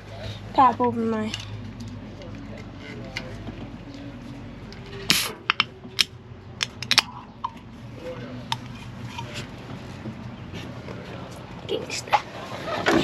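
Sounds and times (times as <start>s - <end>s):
drink can opening pop: 5.1s - 7.1s.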